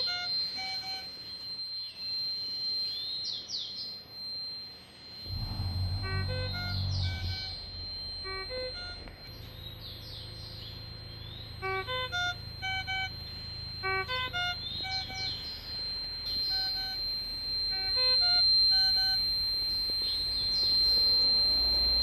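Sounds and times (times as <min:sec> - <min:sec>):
steady high whine: 0:00.0 - 0:22.0
ventilator beeping: 0:00.0 - 0:22.0.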